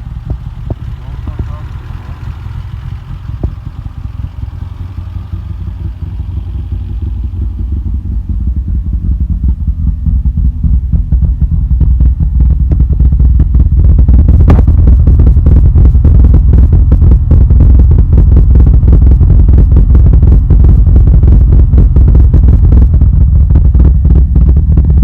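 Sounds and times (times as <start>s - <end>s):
car engine running: 0.0s - 25.0s
exhaust crackles: 0.0s - 25.0s.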